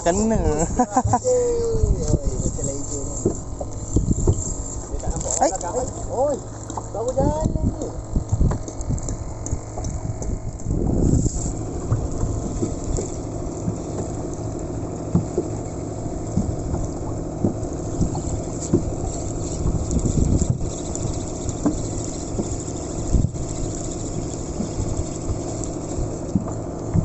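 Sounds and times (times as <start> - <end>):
boat engine running: 0.0 - 27.0
wind buffeting microphone: 1.6 - 5.8, 7.1 - 13.1, 16.4 - 21.7.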